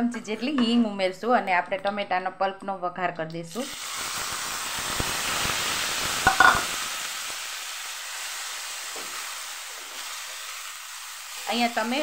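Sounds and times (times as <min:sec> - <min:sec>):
tomato pulp sizzling in oil: 0:03.5 - 0:12.0.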